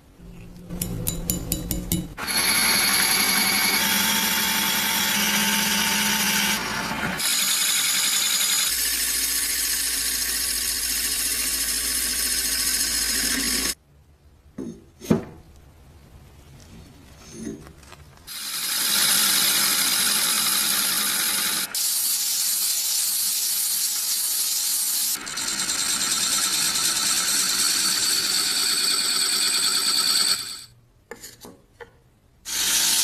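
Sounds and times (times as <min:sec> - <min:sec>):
power tool whining: 0:02.2 - 0:13.8.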